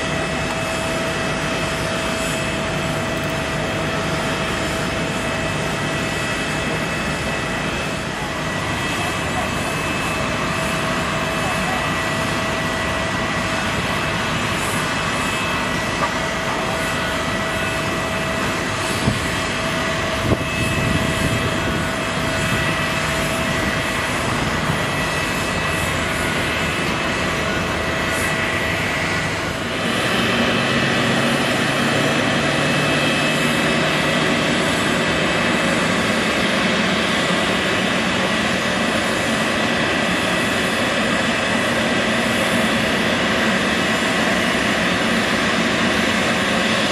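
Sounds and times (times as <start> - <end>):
jet engines whining: 0.0 - 46.9.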